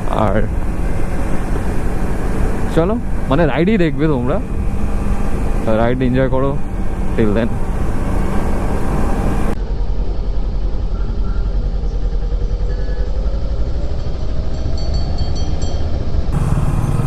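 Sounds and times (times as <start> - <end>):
motorcycle engine running: 0.0 - 9.6, 16.3 - 17.0.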